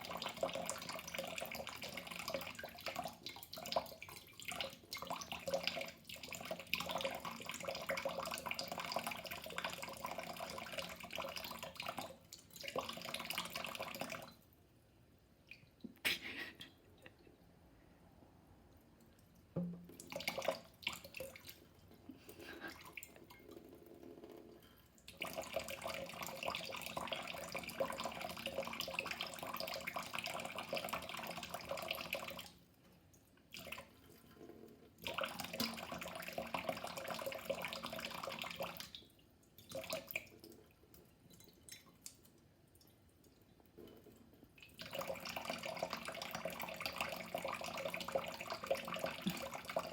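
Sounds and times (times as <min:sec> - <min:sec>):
water dripping and trickling: 0:00.0 - 0:14.6, 0:18.7 - 0:49.9
tap running into sink: 0:19.6 - 0:20.0.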